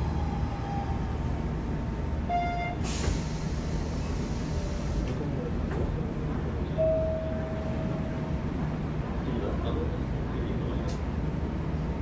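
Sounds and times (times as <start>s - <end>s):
train low rumble: 0.0s - 12.0s
air brake hiss: 2.7s - 5.0s
short beep: 6.8s - 8.0s.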